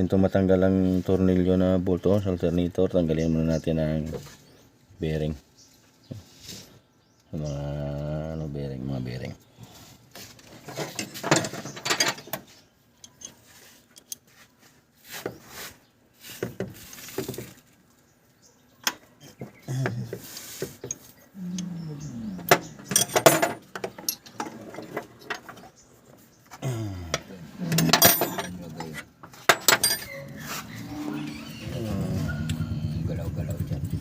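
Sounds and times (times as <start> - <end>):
metal tools clinking on engine parts: 10.6 - 12.4, 13.0 - 14.3, 22.4 - 25.7, 27.7 - 30.3.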